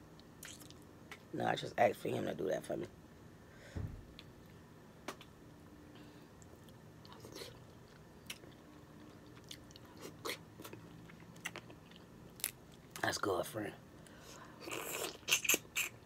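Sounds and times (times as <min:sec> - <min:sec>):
faint close-up chewing: 0:00.1 - 0:01.3, 0:06.3 - 0:13.1
lip smacks: 0:14.7 - 0:16.0
wet mouth clicks: 0:14.7 - 0:16.0.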